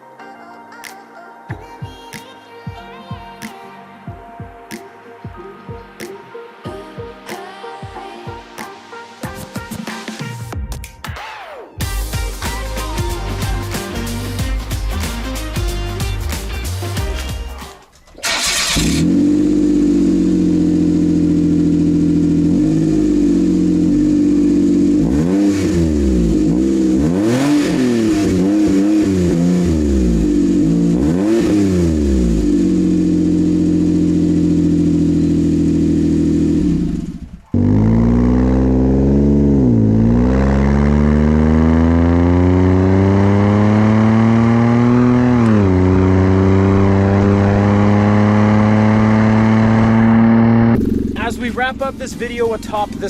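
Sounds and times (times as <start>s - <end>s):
car engine revving: 18.2s - 53.0s.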